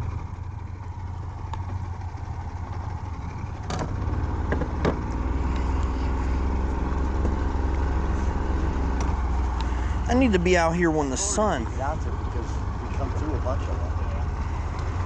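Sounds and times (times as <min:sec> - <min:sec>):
outboard motor running: 0:00.0 - 0:15.0
sharp knocks: 0:03.6 - 0:05.1.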